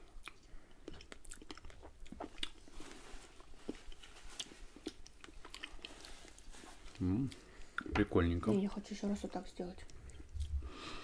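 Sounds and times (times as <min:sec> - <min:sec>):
chewing and mouth sounds: 0:00.0 - 0:02.7, 0:03.4 - 0:07.9.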